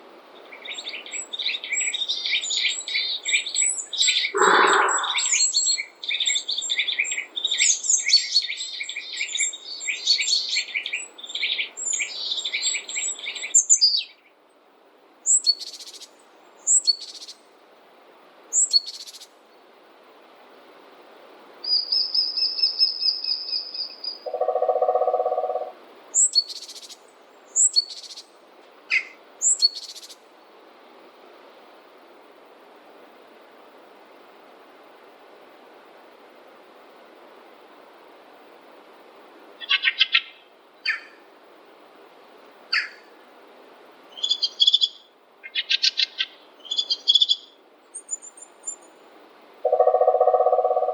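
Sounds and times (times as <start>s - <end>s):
faint steady hiss: 0.0s - 50.9s
songbirds singing and calling: 0.4s - 14.4s, 15.2s - 17.5s, 21.6s - 30.2s, 39.6s - 41.2s, 42.7s - 43.1s, 44.1s - 49.0s, 49.7s - 50.9s
high bird trill: 0.6s - 13.9s, 21.8s - 26.8s, 49.6s - 50.9s.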